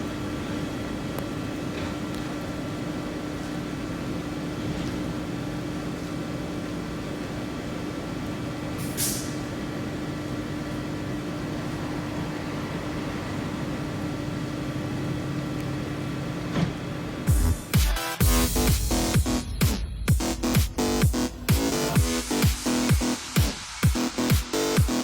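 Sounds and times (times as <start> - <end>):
hiss of air: 8.8 - 9.5
train humming: 9.8 - 25.0.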